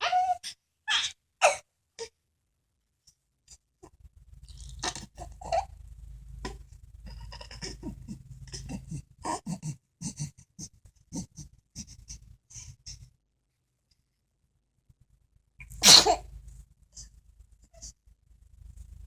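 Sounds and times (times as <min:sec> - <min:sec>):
breathy vocal sounds: 0:06.5 - 0:13.0.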